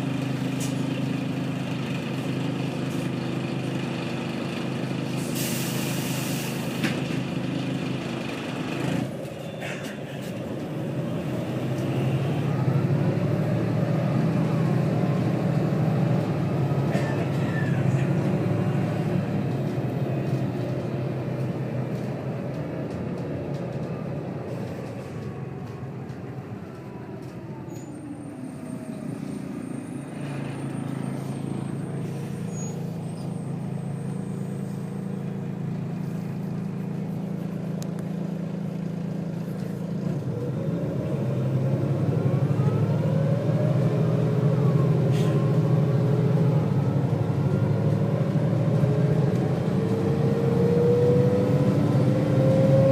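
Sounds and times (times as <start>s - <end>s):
bus engine: 0.0s - 52.9s
engine revving under acceleration: 10.8s - 26.2s, 28.7s - 52.9s.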